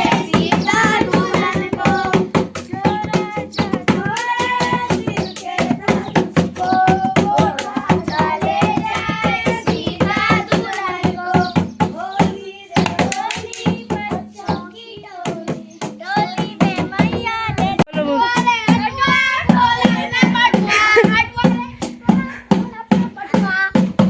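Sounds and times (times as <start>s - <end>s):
hand claps: 12.8s - 13.8s.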